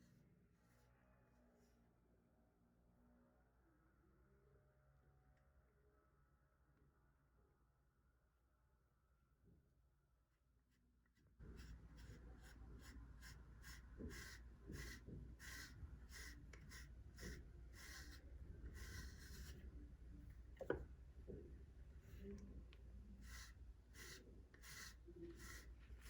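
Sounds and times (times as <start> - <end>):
brush stroking cat fur: 11.4 - 19.8, 23.1 - 26.0.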